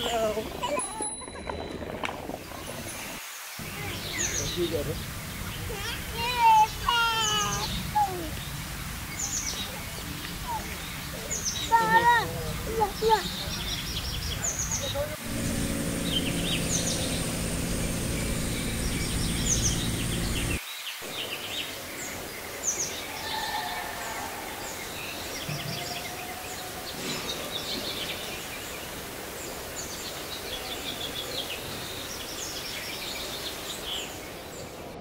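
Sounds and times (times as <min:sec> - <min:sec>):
small birds chirping: 0:00.0 - 0:23.2
steady hiss: 0:02.3 - 0:23.2
loud low hum: 0:15.2 - 0:20.6
thin high whine: 0:15.2 - 0:20.6.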